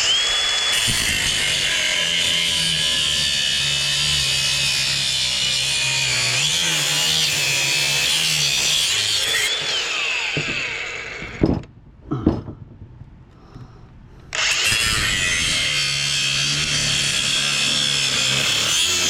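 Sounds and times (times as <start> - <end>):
power saw cutting metal: 0.0 - 11.5, 14.3 - 19.0
sharp knocks: 10.3 - 12.9.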